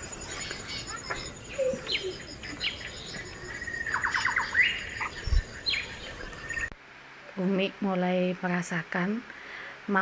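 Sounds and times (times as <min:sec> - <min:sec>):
birds chirping: 0:00.0 - 0:06.8.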